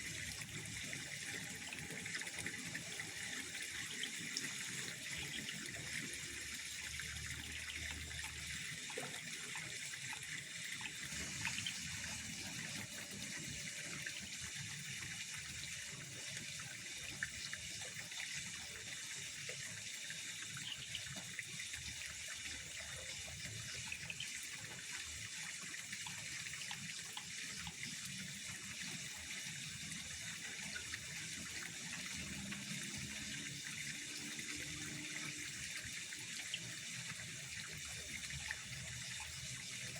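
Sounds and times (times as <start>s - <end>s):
trickling water: 0.0s - 39.9s.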